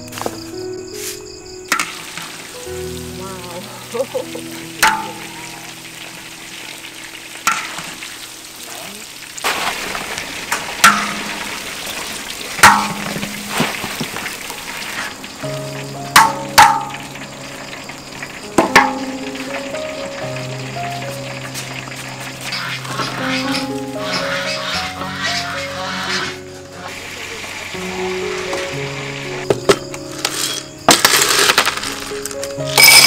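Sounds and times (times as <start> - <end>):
food sizzling in a pan: 1.0 - 32.2
utensil knocking against pan: 10.8 - 11.4, 12.6 - 14.1, 16.2 - 17.0, 18.6 - 19.2.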